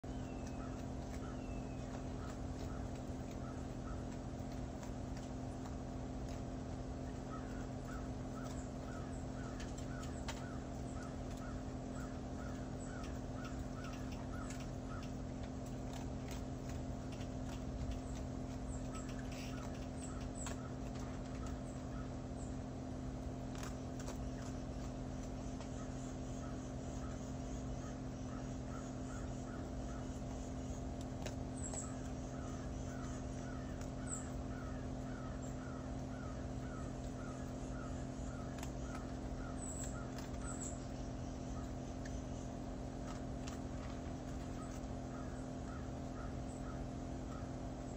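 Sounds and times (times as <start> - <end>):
bird chirping: 0.0 - 4.2, 7.1 - 22.6, 31.5 - 47.5
steady low hum: 0.0 - 47.9.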